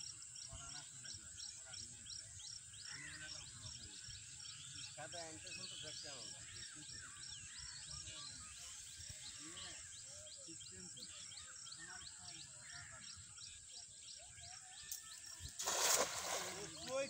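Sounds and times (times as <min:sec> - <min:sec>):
bird chirping: 0:00.0 - 0:17.0
faint background birds: 0:00.0 - 0:17.0
net splashing into water: 0:15.5 - 0:17.0.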